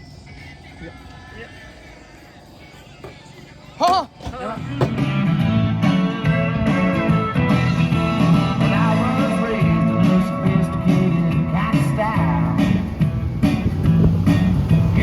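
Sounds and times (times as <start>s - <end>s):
guitar-led song: 4.6s - 15.0s.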